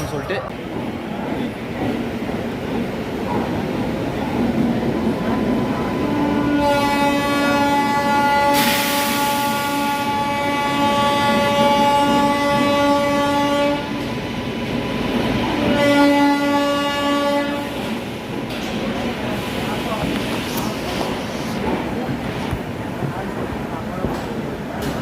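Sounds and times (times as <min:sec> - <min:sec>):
locomotive horn blasts: 0:06.0 - 0:14.0, 0:15.6 - 0:17.7
burst of hiss: 0:08.6 - 0:09.6.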